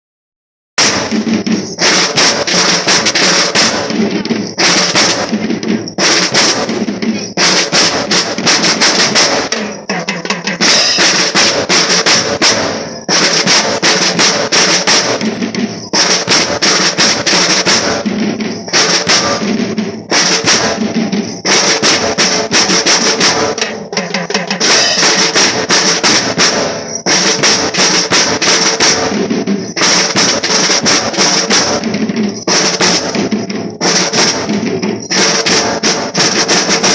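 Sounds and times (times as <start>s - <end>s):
bass drum beats: 0.8s - 36.9s
snare drum rolls: 0.8s - 36.9s.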